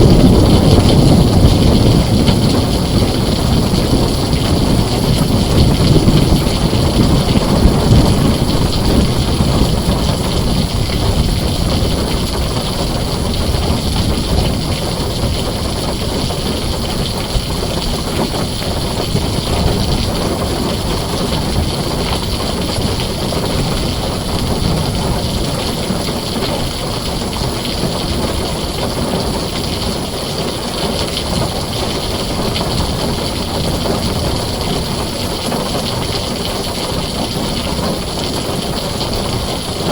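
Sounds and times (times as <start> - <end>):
heavy rain on a tin roof: 0.0 - 39.9
low thunder rumble: 0.0 - 39.9.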